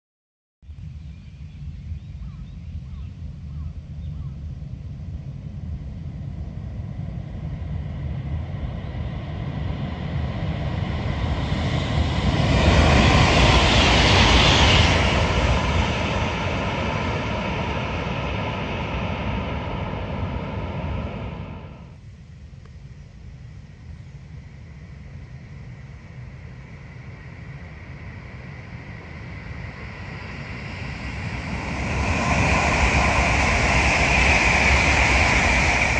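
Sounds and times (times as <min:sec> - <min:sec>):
high-speed train passing: 0:06.4 - 0:22.0, 0:28.9 - 0:35.9.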